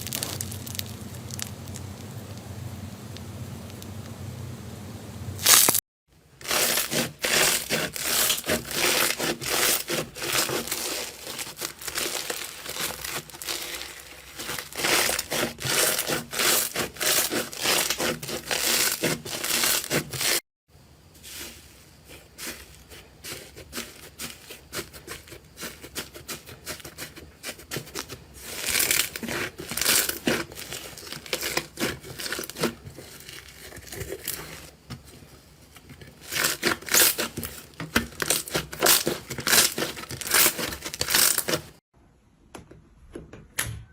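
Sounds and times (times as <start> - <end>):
slime squeezed by hand crackling: 0.0 - 2.0, 5.4 - 5.8, 6.4 - 20.4.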